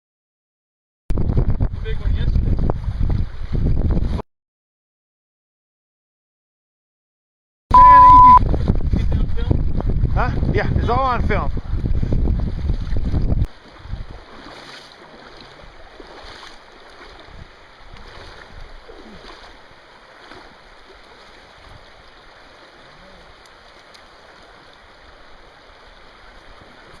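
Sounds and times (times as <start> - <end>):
river water rushing: 13.5 - 27.0.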